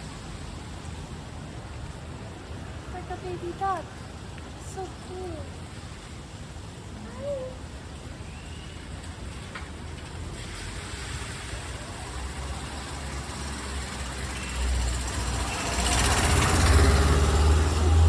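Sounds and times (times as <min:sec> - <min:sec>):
tyres hissing on wet road: 0:00.0 - 0:18.0
vehicle engine rumble: 0:09.1 - 0:18.0.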